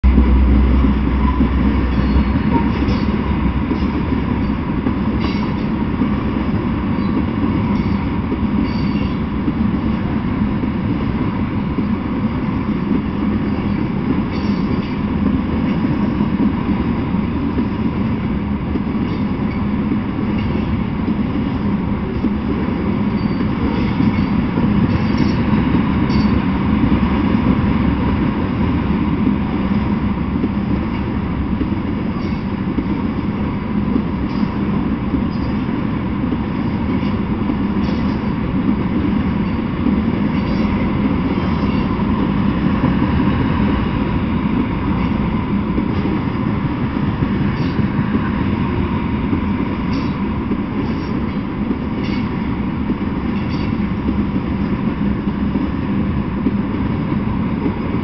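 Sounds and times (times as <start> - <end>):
steel train wheels on rails: 0.0 - 58.0.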